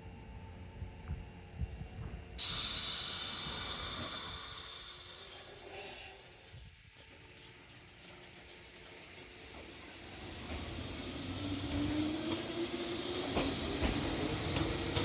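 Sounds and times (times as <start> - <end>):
train compressed air hiss: 1.7 - 6.9.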